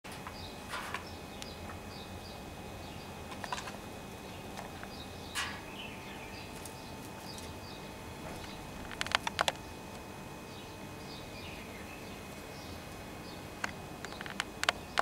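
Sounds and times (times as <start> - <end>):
small birds chirping: 0.1 - 15.0.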